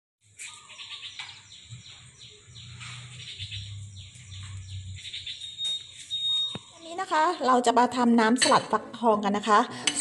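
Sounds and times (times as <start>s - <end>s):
small birds chirping: 0.2s - 8.0s.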